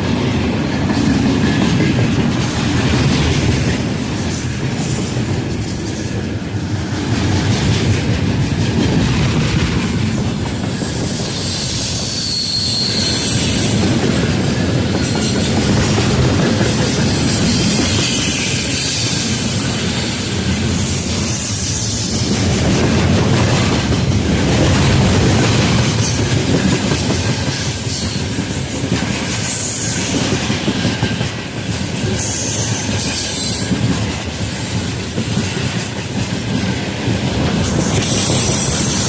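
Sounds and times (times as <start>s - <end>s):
train rumble and hiss: 0.0s - 39.0s
high wheel squeals: 10.7s - 13.8s.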